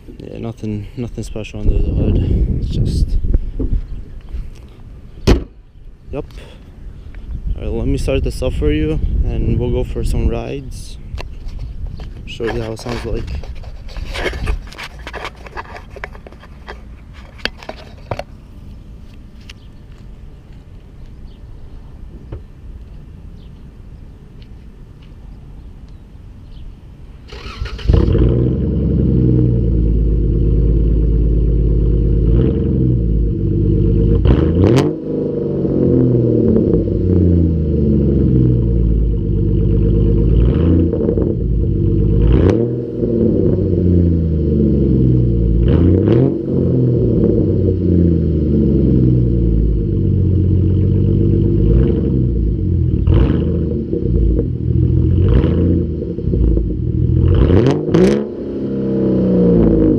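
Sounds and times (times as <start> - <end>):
car engine starting and revving: 27.3 - 59.9.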